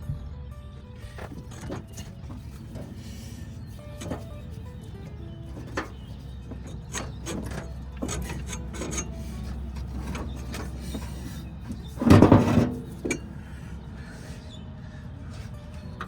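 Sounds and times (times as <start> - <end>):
hand tools clicking on metal: 1.0 - 13.4
metal parts clattering: 1.0 - 13.4.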